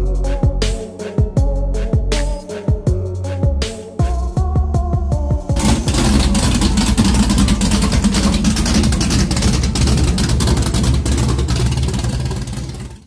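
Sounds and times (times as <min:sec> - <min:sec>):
music: 0:00.0 - 0:06.9
engine running loudly: 0:05.6 - 0:13.0.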